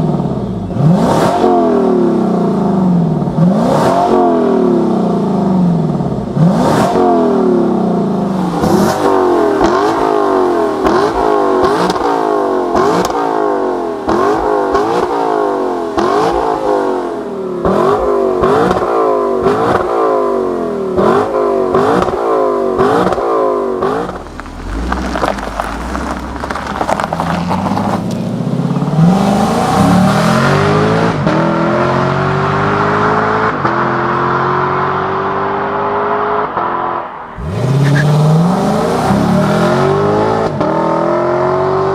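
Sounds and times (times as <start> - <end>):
car engine revving: 0.0 - 41.9
exhaust pops: 22.8 - 28.4.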